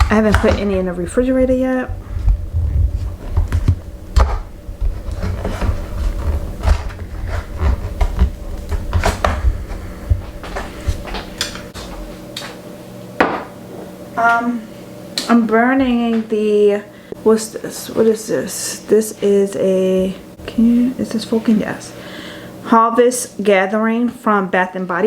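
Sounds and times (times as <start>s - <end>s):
low rumble of handling: 0.0s - 12.2s.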